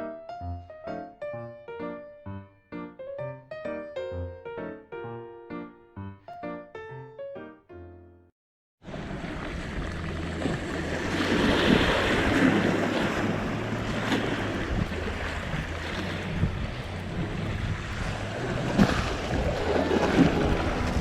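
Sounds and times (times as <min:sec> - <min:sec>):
waves washing: 0:08.8 - 0:21.0
wind buffeting microphone: 0:08.9 - 0:21.0.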